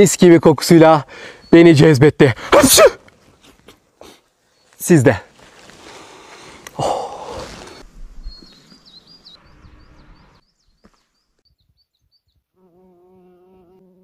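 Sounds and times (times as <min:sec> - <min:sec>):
small bird chirping: 0:08.1 - 0:12.6.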